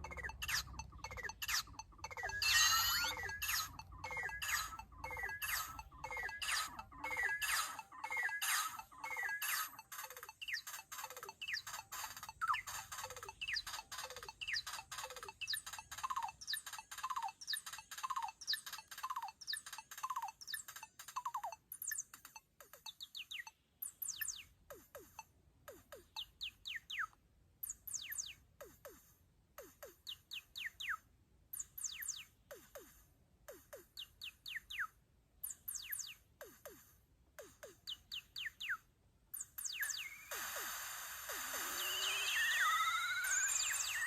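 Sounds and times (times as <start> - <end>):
synthesizer blips falling in pitch: 0.0 - 21.6, 39.4 - 44.0.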